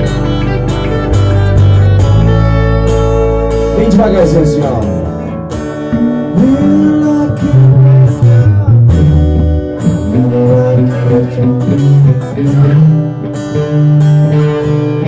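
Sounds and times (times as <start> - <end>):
live guitar music: 0.0 - 15.0
low bass notes: 0.0 - 15.0.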